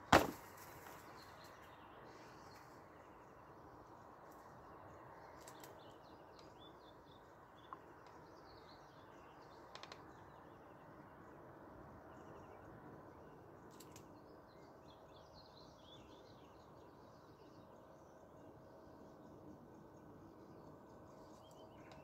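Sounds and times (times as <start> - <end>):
faint songbird chirps and trills: 0.0 - 22.0
soft clicks: 13.7 - 14.1.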